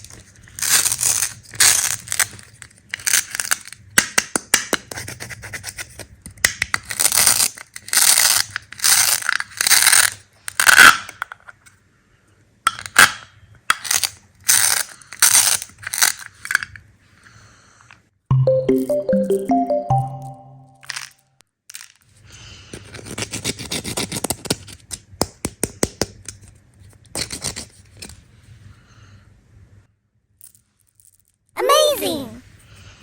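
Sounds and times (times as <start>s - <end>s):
music: 18.3s - 20.9s.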